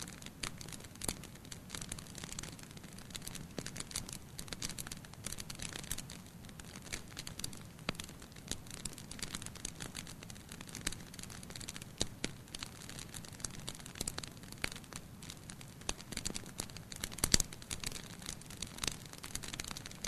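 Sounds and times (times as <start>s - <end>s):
sharp pops of fire: 0.0s - 20.0s
wood fire crackling: 0.0s - 20.0s.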